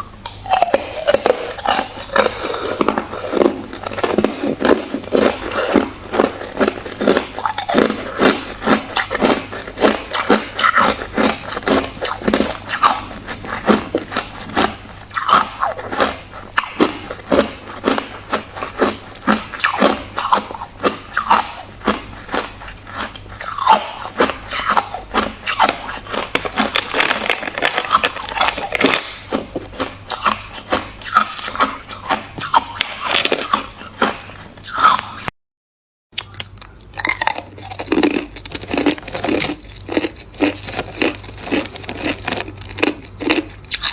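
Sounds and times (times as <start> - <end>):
ice crunching between teeth: 0.0 - 35.3, 36.2 - 43.9.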